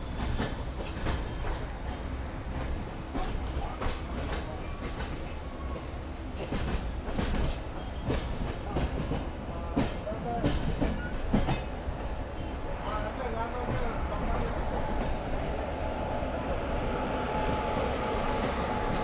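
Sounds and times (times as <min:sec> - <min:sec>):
train coach rumbling: 0:00.0 - 0:19.0
wheels clacking over rail joints: 0:06.4 - 0:15.6.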